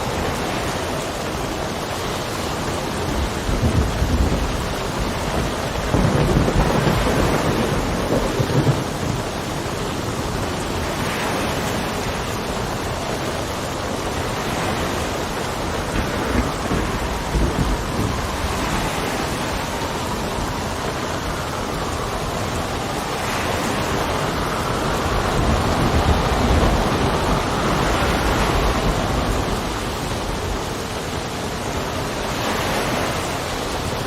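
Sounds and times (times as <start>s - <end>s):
steady rain: 0.0s - 34.0s
distant thunder rumbling: 2.8s - 11.0s, 14.2s - 30.6s.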